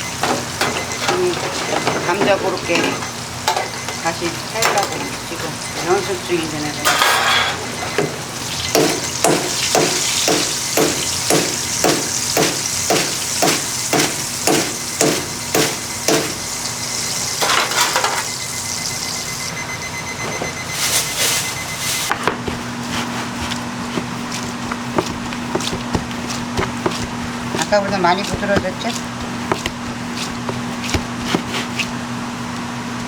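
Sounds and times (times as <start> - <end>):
steady sizzle: 8.1 - 19.8.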